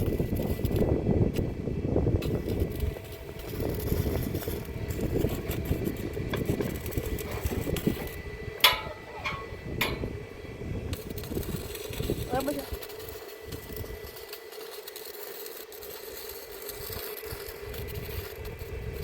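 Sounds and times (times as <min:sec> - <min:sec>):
ringing metal clanks: 0:08.6 - 0:10.2.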